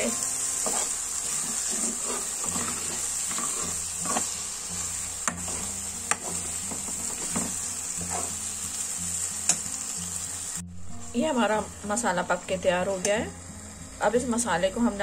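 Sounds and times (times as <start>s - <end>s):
sauce sizzling in a pan: 0.0s - 15.0s
spoon stirring and scraping: 0.5s - 8.4s.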